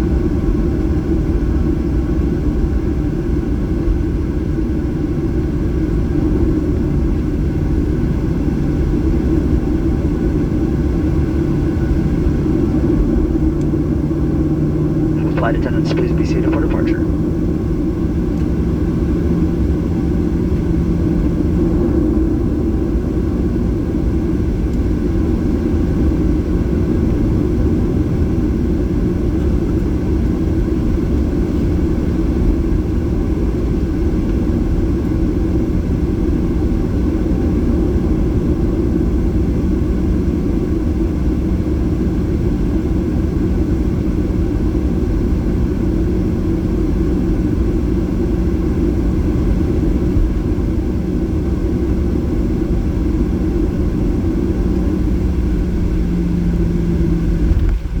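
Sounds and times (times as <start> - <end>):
airplane cabin engine rumble: 15.2 - 17.4.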